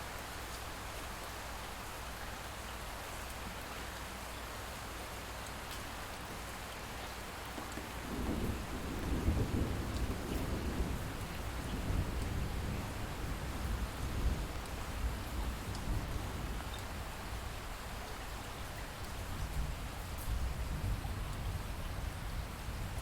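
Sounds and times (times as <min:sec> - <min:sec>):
steady light rain: 0:00.0 - 0:23.0
distant thunder rumbling: 0:07.6 - 0:16.7.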